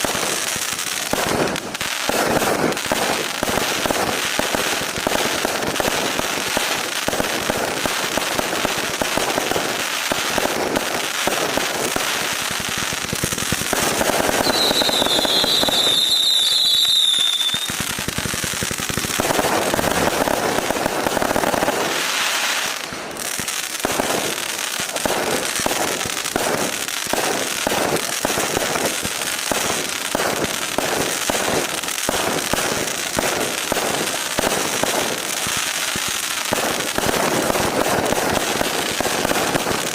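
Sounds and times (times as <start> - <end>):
fireworks firing rapid shots: 0.0 - 39.9
high wavering whistle: 14.4 - 17.8.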